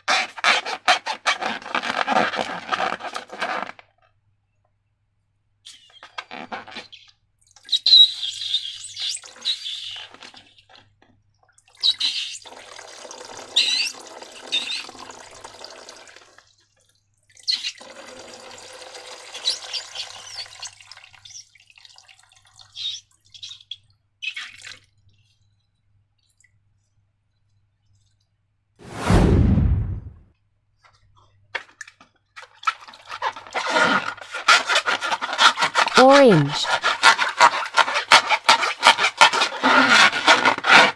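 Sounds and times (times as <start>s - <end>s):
wet squelches: 22.6s - 28.3s.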